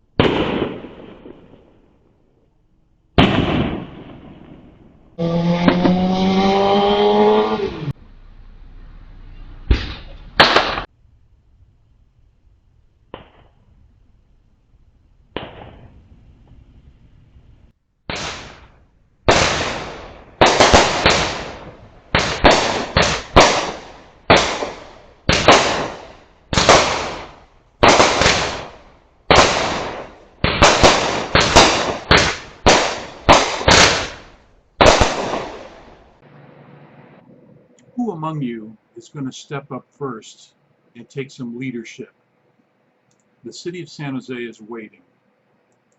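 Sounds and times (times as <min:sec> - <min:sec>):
fireworks bangs: 0:00.0 - 0:02.3, 0:03.1 - 0:07.9, 0:09.3 - 0:10.9, 0:13.0 - 0:14.0, 0:15.3 - 0:36.2
fireworks pops: 0:09.7 - 0:10.9, 0:13.1 - 0:13.7, 0:15.3 - 0:16.6.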